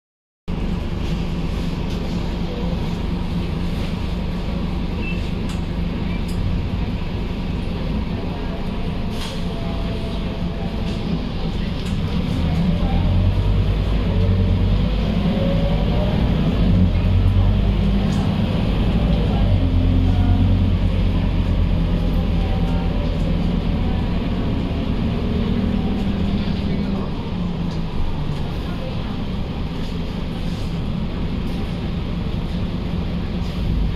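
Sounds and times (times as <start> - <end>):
diesel bus engine running: 0.5 - 33.9.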